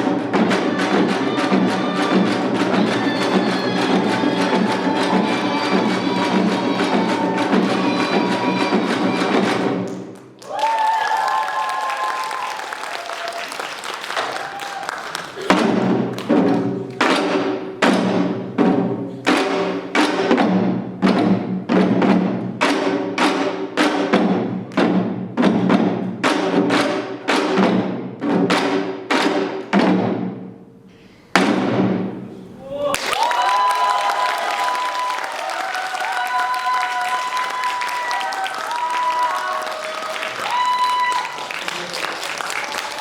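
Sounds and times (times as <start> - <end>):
drum roll: 0.0 - 30.5, 31.3 - 32.3.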